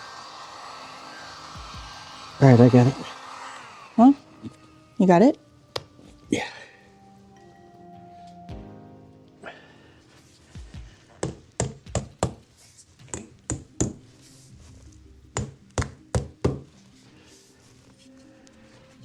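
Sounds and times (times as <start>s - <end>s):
background music: 0.0s - 19.0s
sharp knocks and taps: 10.6s - 12.4s.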